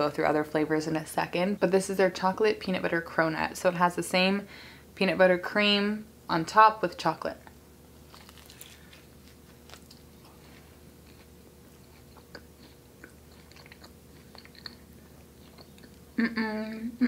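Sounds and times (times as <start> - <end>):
steady low hum: 0.0 - 17.0
biting and chewing: 8.0 - 16.1.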